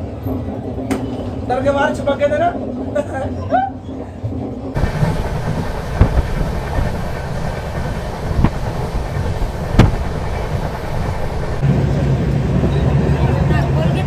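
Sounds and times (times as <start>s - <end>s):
train wheels rumbling on track: 4.1s - 14.0s
wheels knocking over rail joints: 4.8s - 11.6s.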